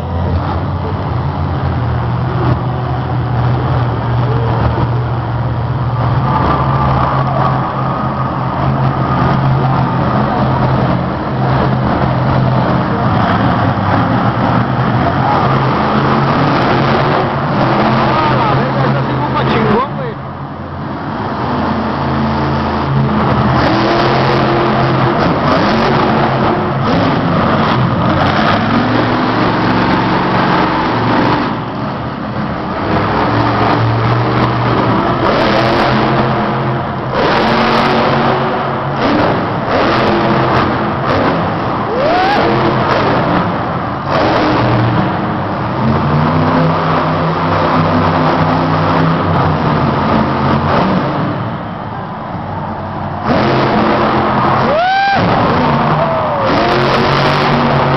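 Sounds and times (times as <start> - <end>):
truck engine revving hard: 0.0 - 57.9.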